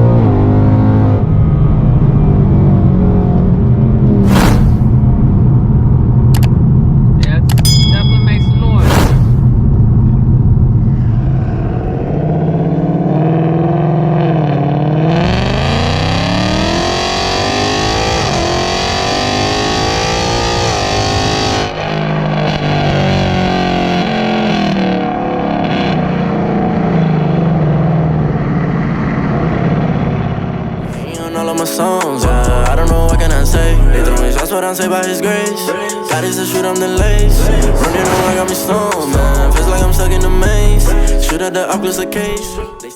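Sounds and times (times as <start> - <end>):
car engine accelerating hard: 0.0 - 7.2, 9.6 - 31.2.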